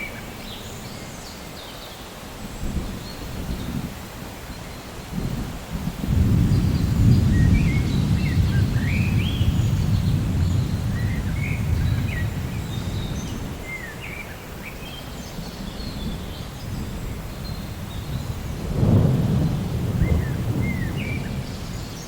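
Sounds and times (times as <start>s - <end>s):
rain hiss: 0.0s - 22.0s
thunder rumbling: 5.1s - 13.8s, 15.4s - 22.0s
birds chirping and whistling: 6.4s - 22.0s.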